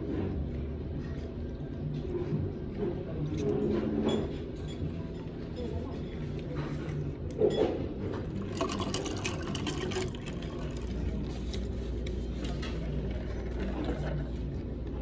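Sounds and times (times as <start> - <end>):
steady low hum: 0.0 - 15.0
utensils clinking in a bowl: 3.3 - 14.3
broth liquid sounds: 8.3 - 15.0.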